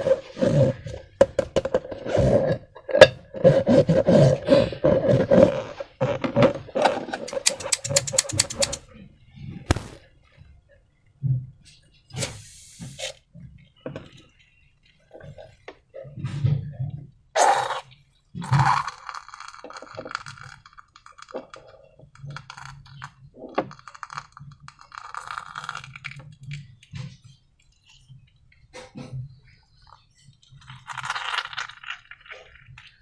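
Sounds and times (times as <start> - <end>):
slime clicking and crackling: 7.3 - 8.8
loud knock: 9.7 - 10.0.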